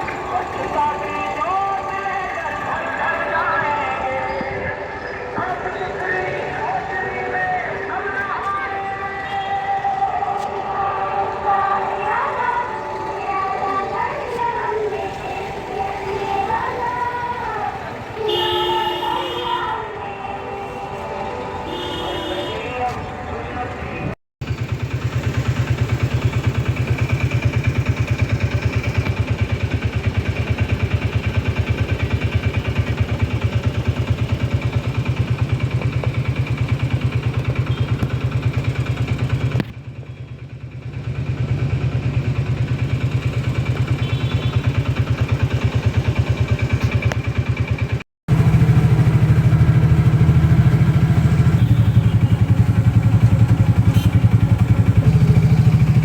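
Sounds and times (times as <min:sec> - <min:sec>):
street noise: 0:00.0 - 0:56.0
motorcycle engine running: 0:24.4 - 0:56.0.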